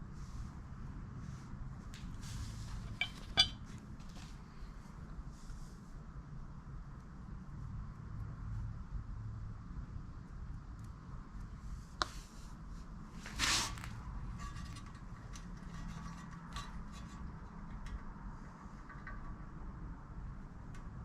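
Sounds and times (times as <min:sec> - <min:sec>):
scraping rustle: 0:01.2 - 0:04.6, 0:11.7 - 0:19.2.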